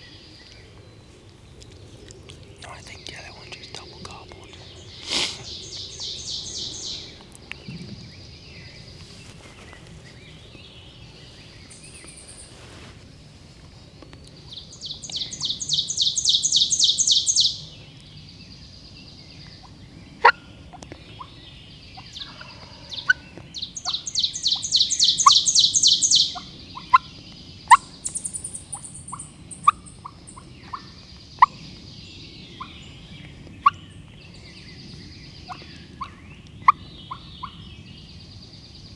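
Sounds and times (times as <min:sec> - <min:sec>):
soft bird calls: 0:00.0 - 0:38.9
sharp bird chips: 0:05.0 - 0:06.3.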